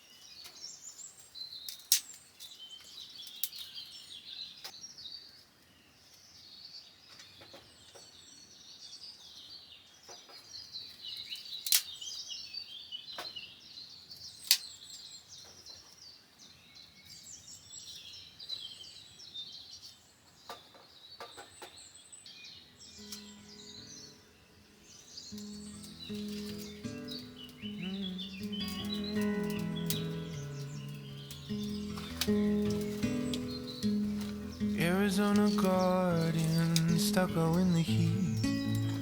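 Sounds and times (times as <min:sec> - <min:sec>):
wild birds chirping and singing: 0:00.0 - 0:39.0
sharp clicks from camp handling: 0:01.7 - 0:02.5, 0:03.2 - 0:03.7, 0:11.6 - 0:11.9, 0:25.4 - 0:39.0.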